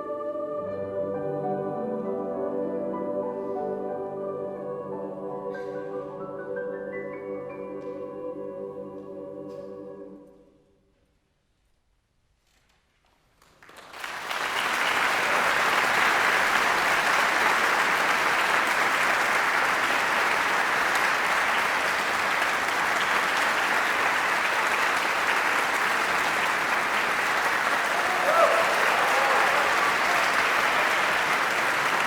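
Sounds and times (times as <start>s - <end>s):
audience applause: 13.6s - 32.0s.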